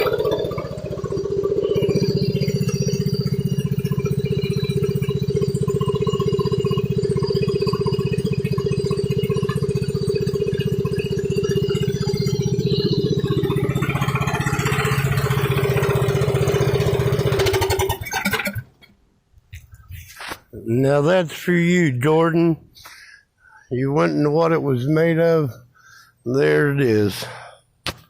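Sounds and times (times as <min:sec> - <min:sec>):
small engine running: 0:00.0 - 0:18.8.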